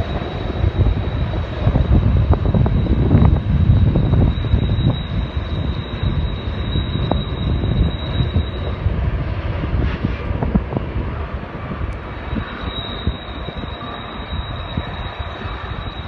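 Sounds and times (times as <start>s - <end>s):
thin high tone: 0.0s - 8.8s, 12.1s - 16.0s
freight train rumbling: 0.0s - 16.0s.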